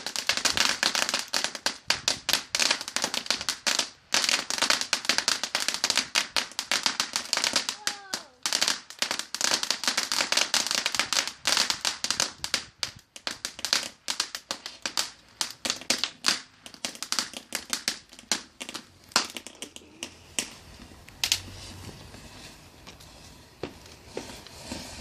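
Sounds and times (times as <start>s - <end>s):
fireworks crackling: 0.0s - 25.0s.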